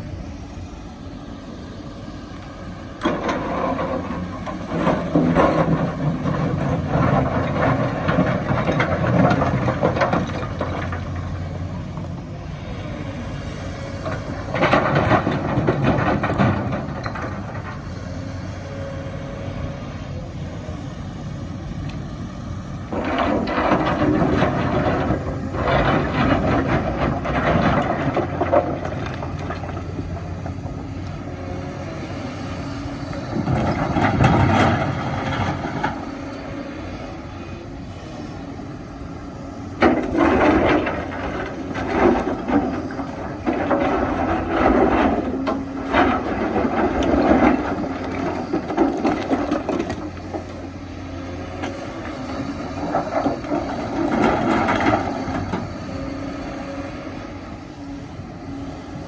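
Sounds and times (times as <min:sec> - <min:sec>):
excavator engine running: 0:00.0 - 0:59.0
rocks grinding and clattering: 0:03.0 - 0:12.0, 0:14.0 - 0:18.0, 0:22.9 - 0:31.2, 0:32.9 - 0:36.4, 0:39.7 - 0:50.7, 0:51.4 - 0:56.4.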